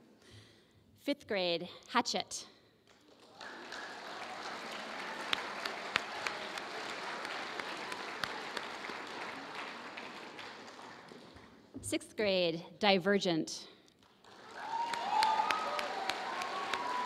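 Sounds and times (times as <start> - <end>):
audience applauding: 3.1 - 11.6, 14.0 - 17.0.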